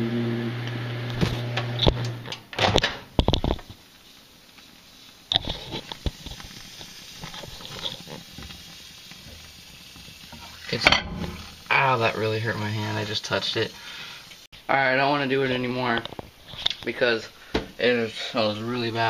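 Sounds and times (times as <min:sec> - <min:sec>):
microwave oven humming: 0:00.0 - 0:02.8.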